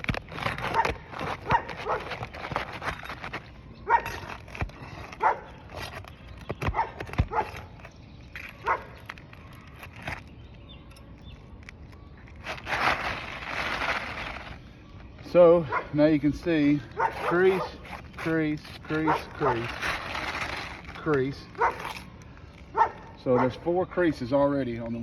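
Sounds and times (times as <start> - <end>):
clicks and knocks of shingle: 0.0 - 14.6
dog barking: 0.7 - 2.1, 3.9 - 4.2, 5.2 - 5.5, 6.7 - 7.6, 8.6 - 8.9, 15.6 - 16.0, 17.0 - 17.8, 19.0 - 19.6, 21.6 - 21.9, 22.7 - 23.6.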